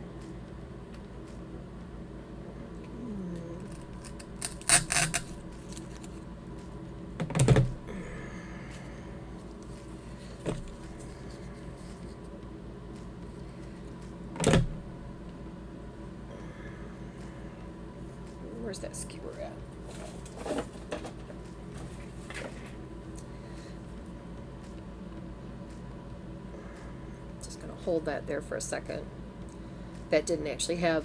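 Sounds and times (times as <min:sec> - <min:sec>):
stems crackling and rustling: 0:19.7 - 0:22.8.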